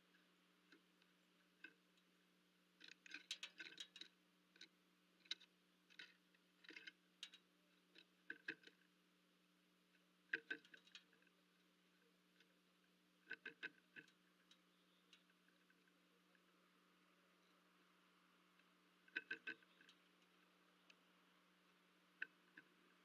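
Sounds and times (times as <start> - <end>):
birds pecking at seed: 10.3 - 23.0.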